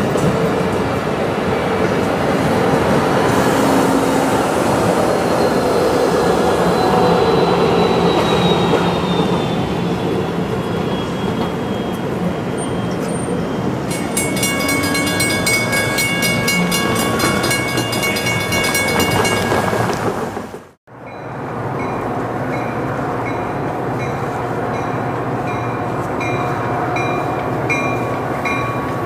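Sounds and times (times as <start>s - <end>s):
train wheels rumbling on rails: 0.0s - 29.0s
wheels squealing on track: 5.1s - 20.1s.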